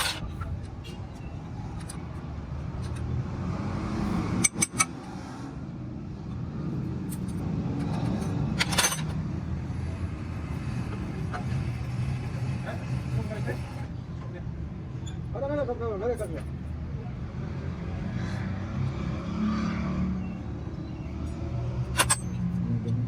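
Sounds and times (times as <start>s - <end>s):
metal tools clinking: 0.0s - 3.1s, 4.4s - 4.9s, 7.0s - 9.2s, 21.9s - 22.5s
low rumble of vehicle engines: 0.0s - 23.0s.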